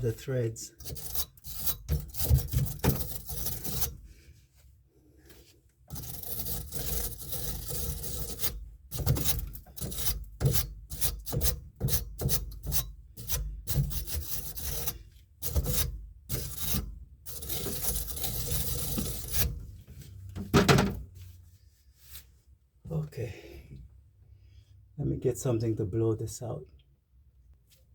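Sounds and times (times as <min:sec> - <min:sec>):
scrubbing pipe threads: 0:00.0 - 0:20.4
loud thump: 0:20.5 - 0:21.0.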